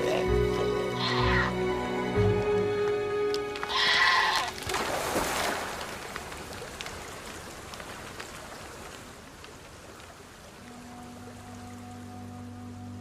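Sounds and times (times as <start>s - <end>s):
goat bleating: 0.9s - 1.6s, 3.7s - 4.5s.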